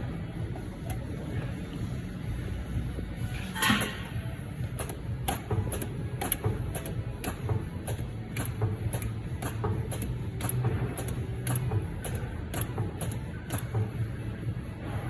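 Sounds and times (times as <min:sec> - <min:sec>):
welding machinery humming: 0:00.0 - 0:15.0
sharp irregular clicks: 0:04.8 - 0:14.0.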